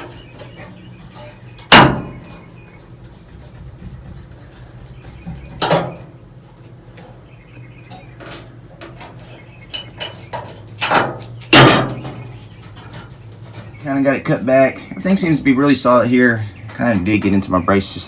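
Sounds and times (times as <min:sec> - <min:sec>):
sheet metal clanking and rattling: 0:00.0 - 0:06.1, 0:08.2 - 0:13.9
steady low hum: 0:00.0 - 0:18.0
loud knocks: 0:01.7 - 0:02.4, 0:03.2 - 0:06.0, 0:10.9 - 0:12.2.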